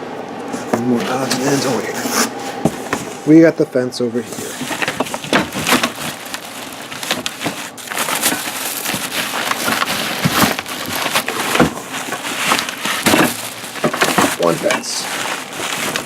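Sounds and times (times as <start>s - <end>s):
cardboard being pulled apart: 4.4s - 16.0s
scraping and knocking: 4.4s - 16.0s.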